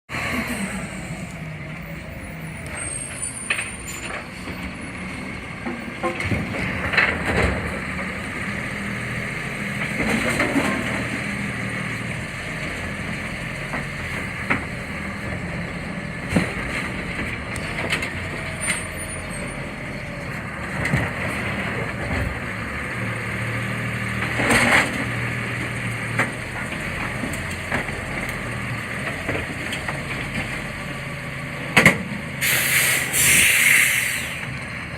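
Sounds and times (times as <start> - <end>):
garbage truck running: 0.1 - 34.9
truck knocks: 31.7 - 32.2
air brake hisses: 32.4 - 34.5.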